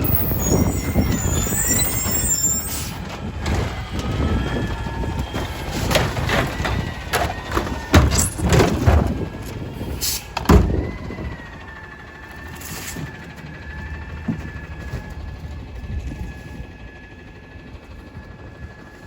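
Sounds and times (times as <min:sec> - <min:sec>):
diesel engine running: 0:00.0 - 0:19.0
high hydraulic whine: 0:00.0 - 0:19.0.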